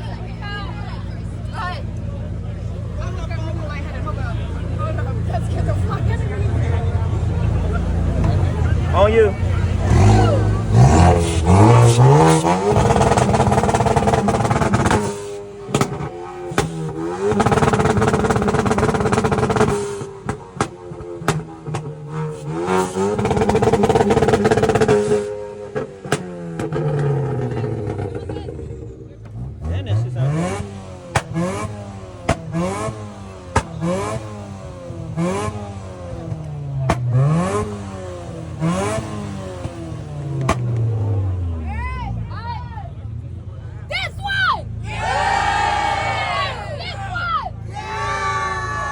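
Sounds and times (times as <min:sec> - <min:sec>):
car engine revving hard: 0:04.8 - 0:41.8.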